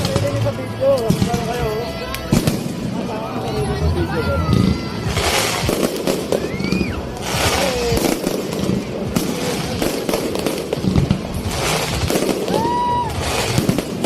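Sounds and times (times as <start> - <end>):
fireworks crackling and banging: 0.0 - 14.0
whistling fireworks: 4.4 - 14.0.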